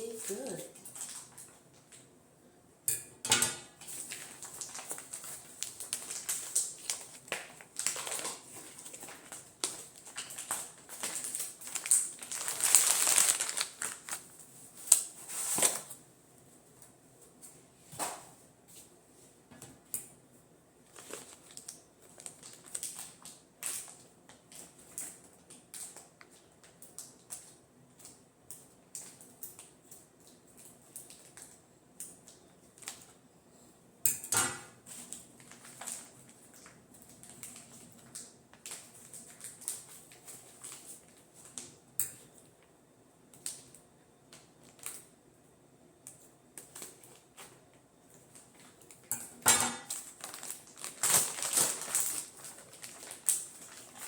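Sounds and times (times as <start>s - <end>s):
plastic wrapping crinkling: 0.0s - 2.0s, 3.8s - 16.0s, 20.8s - 28.2s, 28.9s - 31.6s, 32.2s - 33.2s, 34.7s - 42.4s, 43.3s - 45.1s, 46.1s - 54.0s.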